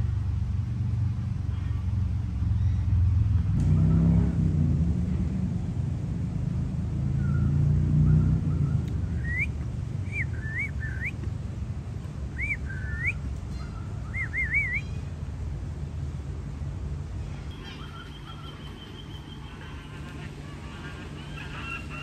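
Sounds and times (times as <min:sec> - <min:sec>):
bird whistled chirps: 0:08.5 - 0:11.2, 0:12.4 - 0:15.0.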